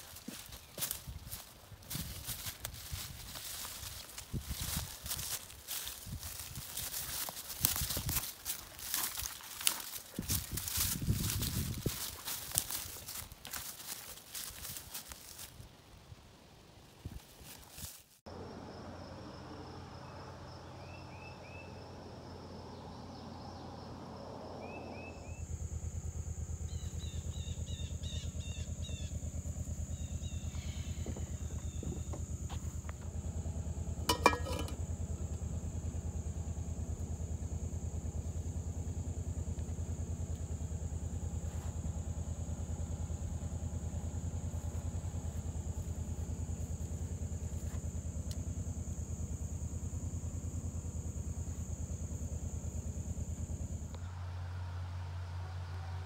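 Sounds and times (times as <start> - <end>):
birds chirping: 0.0 - 15.6
low hum with high whine: 0.0 - 19.6, 25.0 - 56.0.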